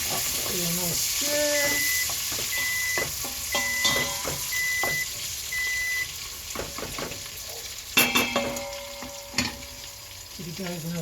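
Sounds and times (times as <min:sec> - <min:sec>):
bacon sizzling in a pot: 0:00.0 - 0:11.0
short high beeps: 0:01.6 - 0:06.1.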